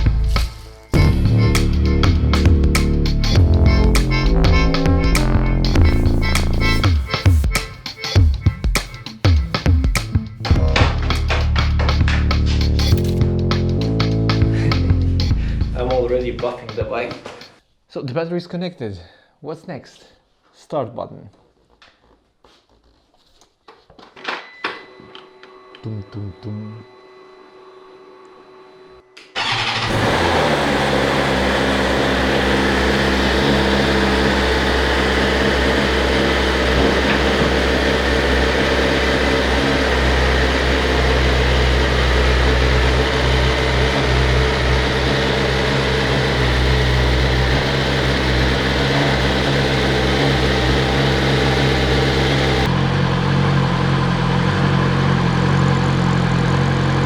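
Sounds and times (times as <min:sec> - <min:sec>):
motorcycle engine starting and idling: 0:01.0 - 0:07.5, 0:09.6 - 0:16.2, 0:29.4 - 0:57.0.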